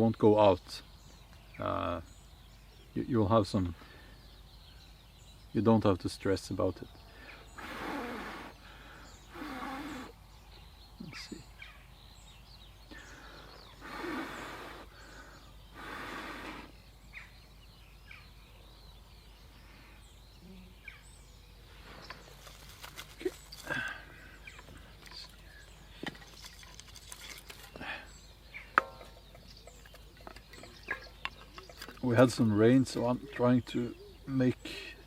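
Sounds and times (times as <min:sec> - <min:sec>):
faint bird chirps: 0:00.0 - 0:35.0
breaths blown into tinder: 0:07.6 - 0:08.6
dry twigs snapping: 0:22.1 - 0:24.0.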